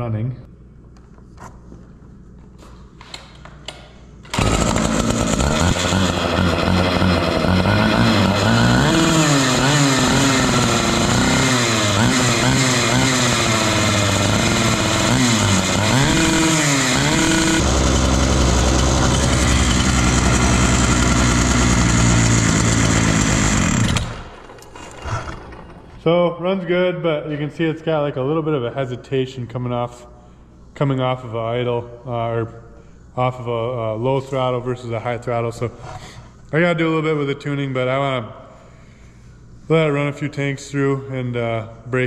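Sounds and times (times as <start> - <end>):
power cutter engine revving: 4.3 - 25.8.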